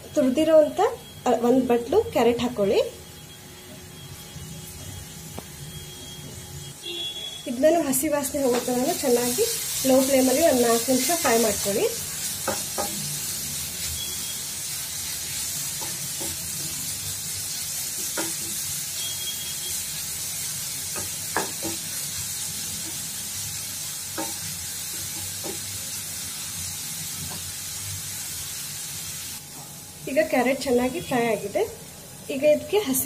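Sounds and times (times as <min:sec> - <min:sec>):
vegetables sizzling in oil: 0:00.0 - 0:06.2, 0:07.3 - 0:33.0.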